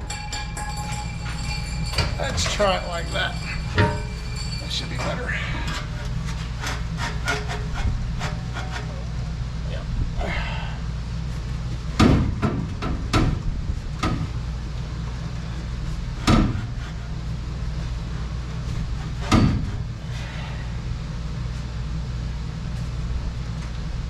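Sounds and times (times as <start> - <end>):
pipe sections knocking: 0.0 - 8.9
steady low hum: 0.0 - 24.0.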